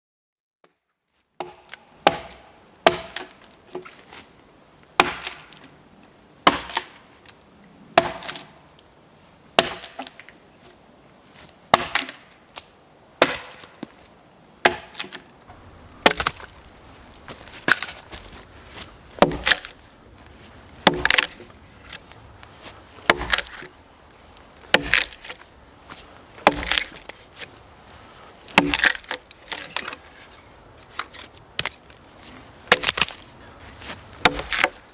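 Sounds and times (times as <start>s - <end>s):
axe chopping wood: 1.4s - 4.1s, 5.0s - 5.6s, 6.4s - 7.1s, 8.0s - 8.6s, 9.6s - 10.3s, 11.7s - 12.4s, 13.2s - 14.0s, 14.6s - 19.9s, 20.8s - 23.8s, 24.6s - 27.6s, 28.5s - 30.0s, 32.7s - 34.9s.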